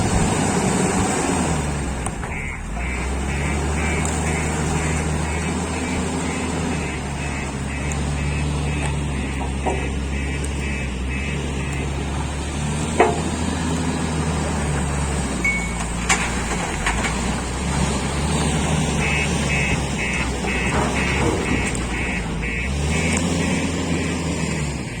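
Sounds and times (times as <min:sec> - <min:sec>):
heavy diesel engine running: 0:00.0 - 0:25.0
sharp knocks: 0:02.2 - 0:11.0, 0:12.8 - 0:13.6
rapid electronic beeping: 0:02.3 - 0:12.2, 0:19.0 - 0:25.0.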